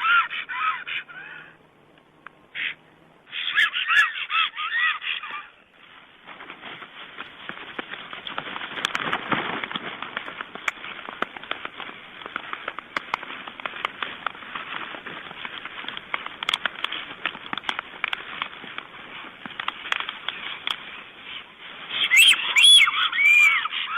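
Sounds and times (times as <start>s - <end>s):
stork clattering its bill: 6.3s - 23.9s.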